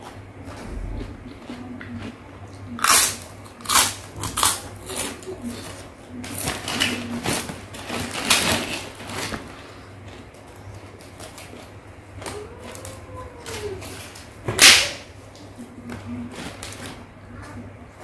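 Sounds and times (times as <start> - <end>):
crunching and chewing cracker: 0.0 - 13.0
low steady hum: 0.0 - 18.0.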